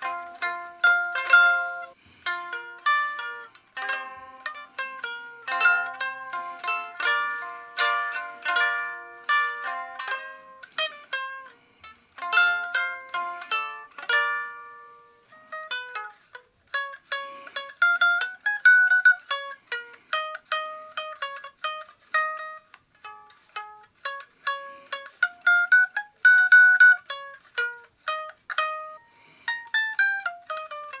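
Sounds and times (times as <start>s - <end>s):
ukulele plucked melody: 0.0s - 31.0s.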